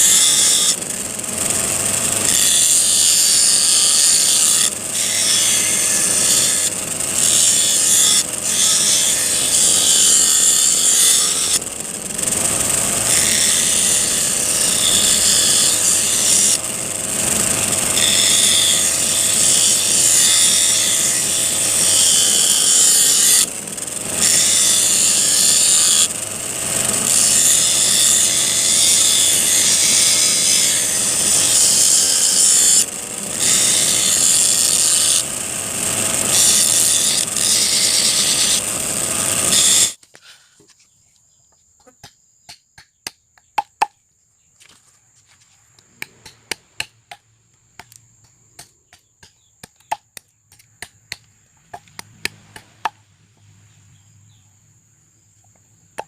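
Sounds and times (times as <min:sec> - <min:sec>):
steel file grinding on abrasive wheel: 0:00.0 - 0:40.0.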